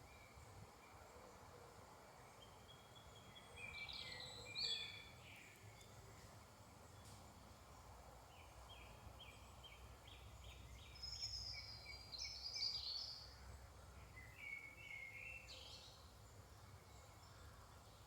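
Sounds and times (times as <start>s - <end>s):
songbirds singing: 2.4s - 6.6s, 8.3s - 13.4s, 14.0s - 18.0s.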